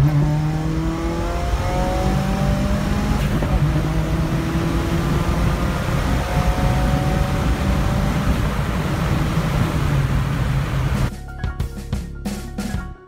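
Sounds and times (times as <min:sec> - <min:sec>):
car engine drone: 0:00.0 - 0:11.1
road and wind noise: 0:00.0 - 0:11.1
exhaust cracks: 0:02.8 - 0:11.1.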